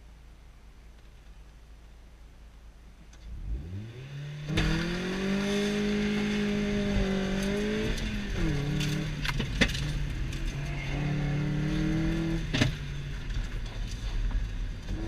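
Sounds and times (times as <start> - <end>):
car engine accelerating: 3.1 - 15.0.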